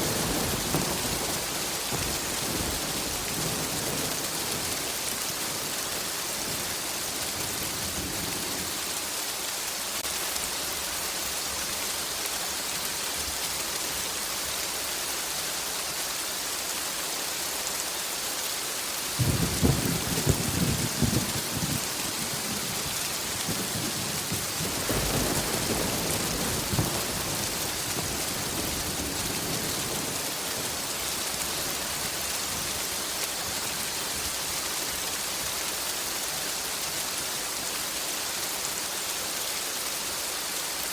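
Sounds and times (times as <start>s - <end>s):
thunder rumbling: 0.0s - 8.8s, 19.2s - 33.2s
rain hissing: 0.0s - 40.9s.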